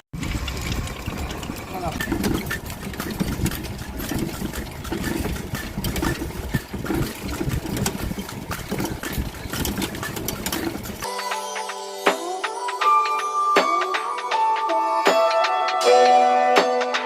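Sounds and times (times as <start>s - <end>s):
cart rattling over road: 0.0s - 11.1s
hooves clopping: 0.3s - 11.1s
music: 11.0s - 17.0s.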